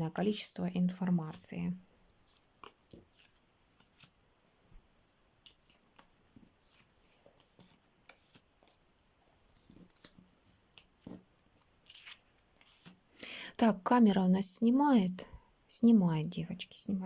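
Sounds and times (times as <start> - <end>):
playing cards being handled: 2.2 - 4.2, 5.1 - 13.1.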